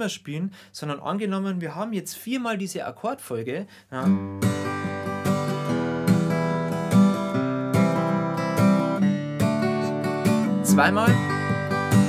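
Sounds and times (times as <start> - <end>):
acoustic guitar strumming: 4.0 - 12.0.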